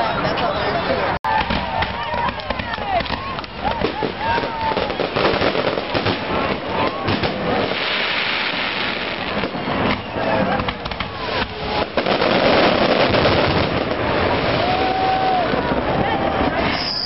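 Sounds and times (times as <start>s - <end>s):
fireworks bangs: 1.3s - 17.0s
fireworks crackling: 1.3s - 17.0s.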